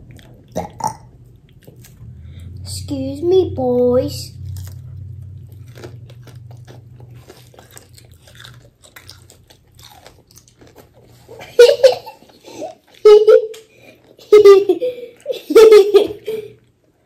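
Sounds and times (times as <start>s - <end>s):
child's voice: 2.6s - 4.4s
chewing crispy chicken crunches: 4.4s - 11.4s.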